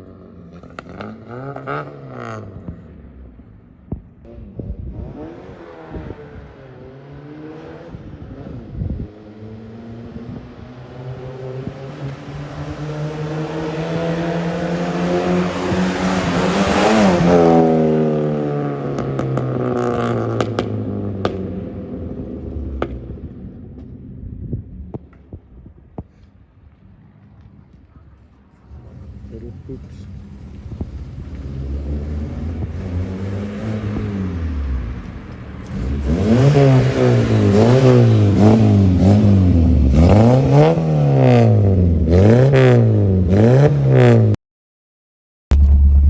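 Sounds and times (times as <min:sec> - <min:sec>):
car exhaust accelerating: 0:00.0 - 0:44.4, 0:45.5 - 0:46.0
exhaust pops: 0:02.4 - 0:05.0, 0:18.9 - 0:21.7, 0:22.4 - 0:42.8, 0:45.5 - 0:46.0.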